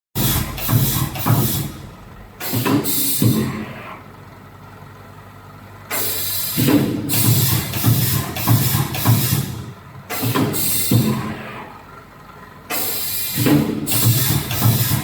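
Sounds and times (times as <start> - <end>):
welding machine mechanical and air noise: 0.2 - 4.0, 5.9 - 11.6, 12.7 - 15.0
low machine hum: 0.2 - 12.7.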